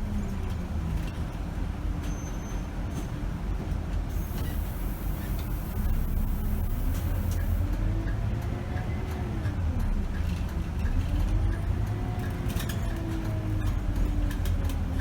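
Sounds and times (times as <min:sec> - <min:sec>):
diesel bus engine rumbling: 0:00.0 - 0:15.0.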